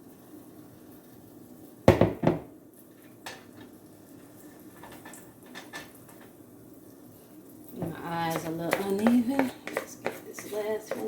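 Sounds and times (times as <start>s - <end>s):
utensil knocking against cookware: 8.3s - 11.0s.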